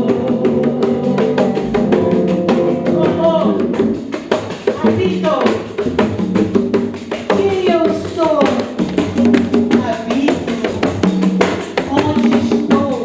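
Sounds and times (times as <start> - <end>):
frame drums playing fast rhythm: 0.0 - 13.0.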